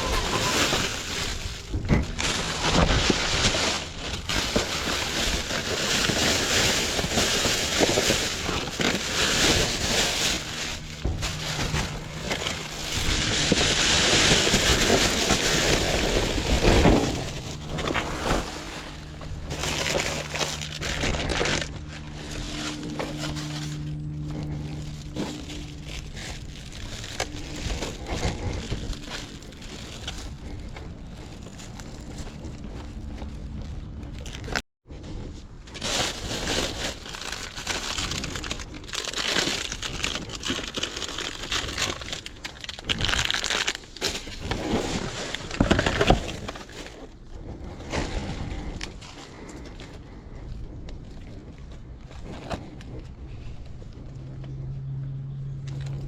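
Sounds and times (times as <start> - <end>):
steady low hum: 0.0 - 42.7
bags and items rustling and clattering: 0.0 - 54.4.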